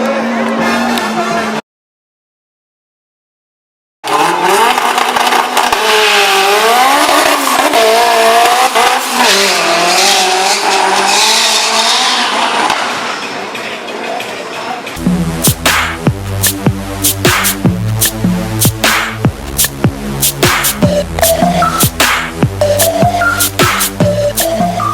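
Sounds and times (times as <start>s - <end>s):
race car engine revving: 4.0s - 13.6s, 15.0s - 24.9s.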